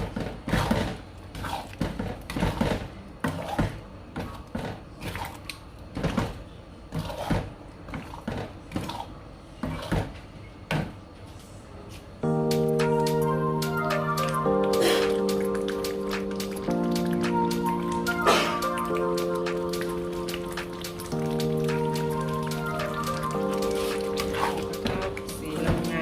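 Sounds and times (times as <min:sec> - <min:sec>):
background music: 0:12.2 - 0:26.0.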